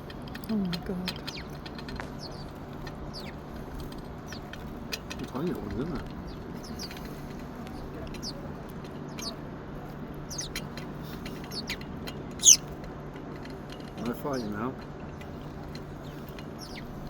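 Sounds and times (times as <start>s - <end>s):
small birds chirping: 0.0s - 12.9s, 13.5s - 17.0s
background murmur: 4.4s - 14.7s.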